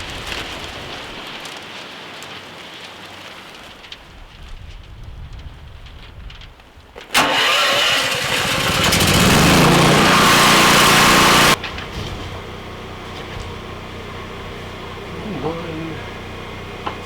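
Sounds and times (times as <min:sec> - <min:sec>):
motor running: 0:07.2 - 0:11.6.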